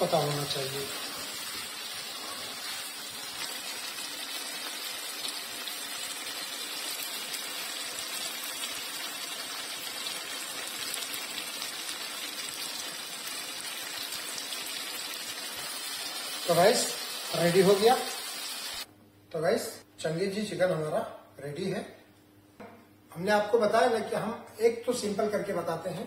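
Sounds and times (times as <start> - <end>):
curry simmering in a pan: 0.2 - 16.5.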